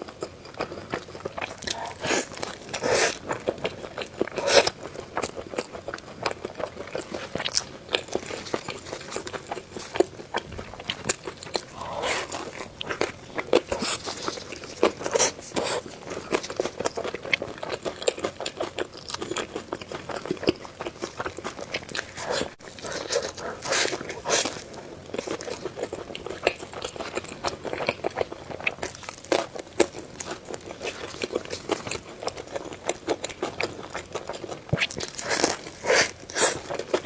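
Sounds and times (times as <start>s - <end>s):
crunchy bites and chewing: 0.0s - 37.0s
wet mouth sounds: 9.6s - 17.4s.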